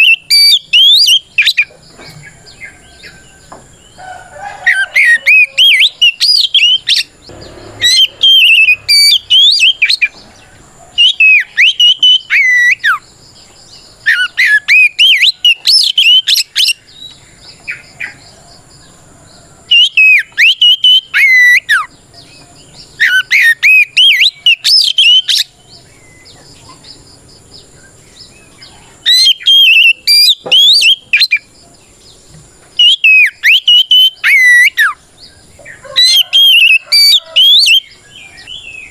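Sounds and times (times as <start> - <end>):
bird singing whistled phrases: 0.0 - 1.7, 4.7 - 7.1, 7.8 - 10.3, 11.0 - 13.0, 14.0 - 17.9, 19.7 - 21.9, 23.0 - 25.5, 29.1 - 31.5, 32.8 - 35.0, 35.9 - 38.9.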